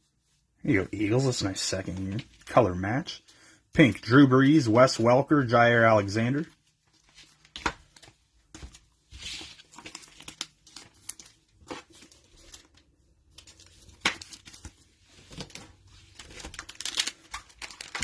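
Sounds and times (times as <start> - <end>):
cards being handled: 6.9 - 18.0
cellophane tearing and crinkling: 9.2 - 18.0.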